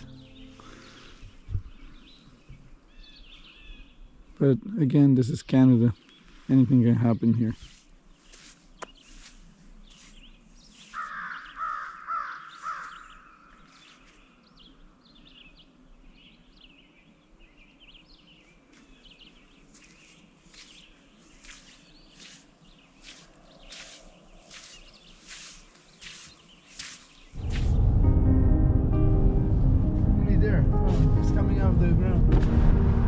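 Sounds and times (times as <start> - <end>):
small birds chirping: 0.0 - 27.8
bird harsh repeated calls: 10.8 - 14.1.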